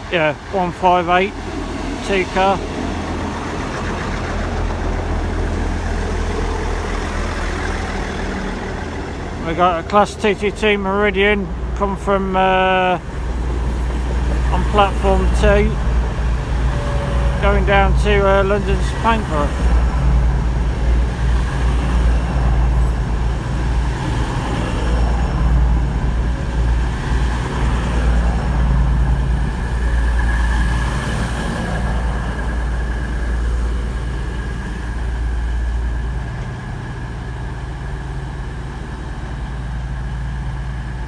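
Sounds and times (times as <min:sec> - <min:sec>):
train diesel engines rumbling: 0:00.0 - 0:41.0.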